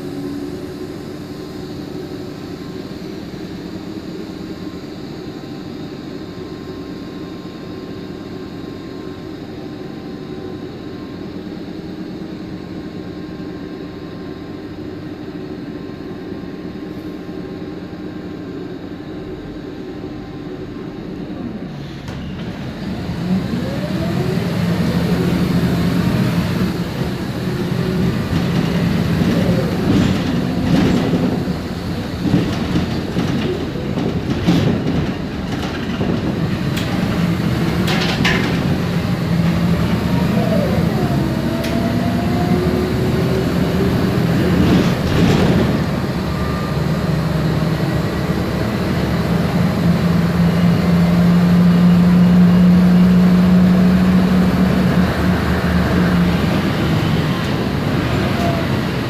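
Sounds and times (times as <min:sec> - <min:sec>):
bus engine droning: 0:00.0 - 0:59.0
bus body rattling and knocking: 0:24.0 - 0:59.0.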